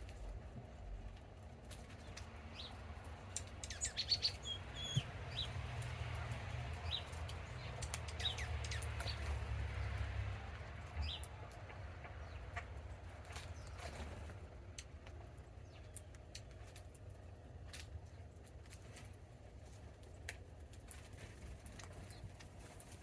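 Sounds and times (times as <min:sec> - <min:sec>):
songbirds chirping: 0:00.0 - 0:18.2.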